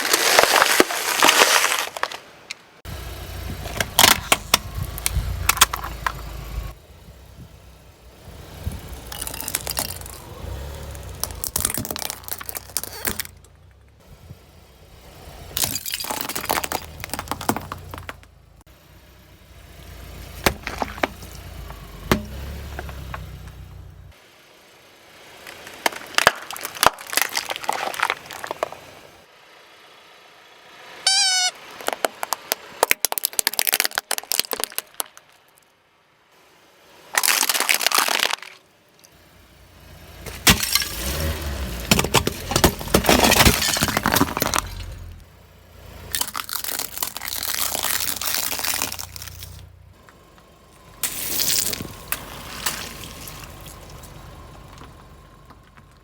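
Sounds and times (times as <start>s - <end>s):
tyre crushing brittle objects: 0.0s - 2.6s, 3.5s - 6.3s, 9.0s - 13.6s, 15.6s - 18.3s, 20.2s - 23.6s, 25.4s - 29.0s, 31.8s - 35.6s, 37.1s - 39.2s, 40.2s - 45.2s, 46.0s - 50.1s, 51.0s - 56.0s
brief squeak: 31.0s - 31.6s.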